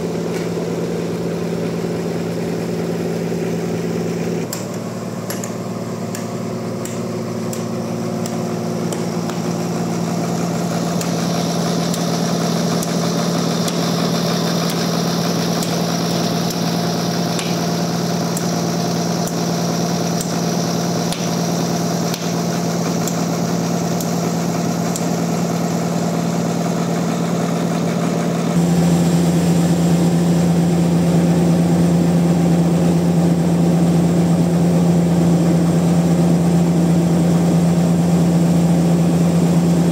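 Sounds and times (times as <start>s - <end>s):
high machine whine: 0.0s - 39.9s
sawmill machinery drone: 0.0s - 39.9s.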